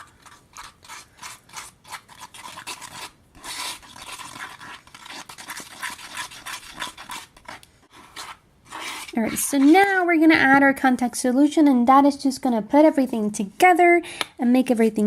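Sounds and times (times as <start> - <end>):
utensil scraping a bowl: 0.0 - 10.1.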